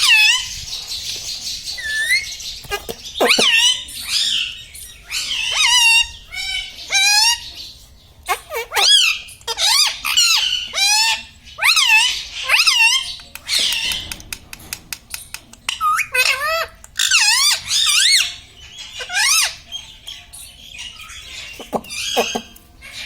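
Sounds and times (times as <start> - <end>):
parrot calling: 0.0 - 0.5, 1.8 - 4.5, 5.1 - 7.5, 8.3 - 14.0, 21.0 - 23.0
faint clicks: 13.2 - 15.8.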